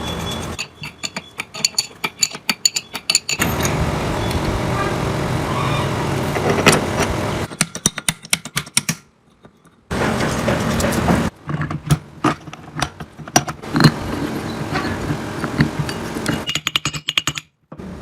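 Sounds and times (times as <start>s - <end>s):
metal tools clinking: 0.0s - 3.8s
steady mechanical hum: 0.0s - 8.0s, 9.0s - 17.0s, 17.7s - 18.0s.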